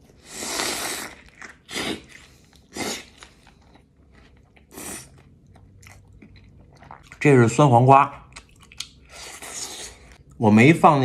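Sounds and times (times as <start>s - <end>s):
chewing: 1.0s - 7.2s, 8.3s - 10.2s.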